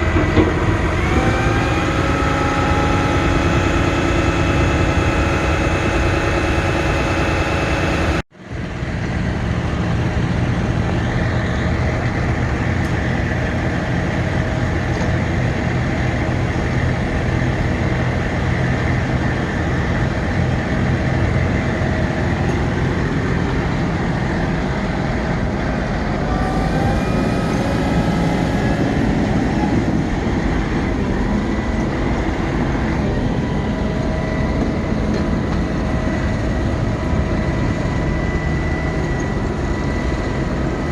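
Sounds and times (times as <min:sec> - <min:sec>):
steady tones: 0:00.0 - 0:08.3
truck engine running: 0:00.0 - 0:40.9.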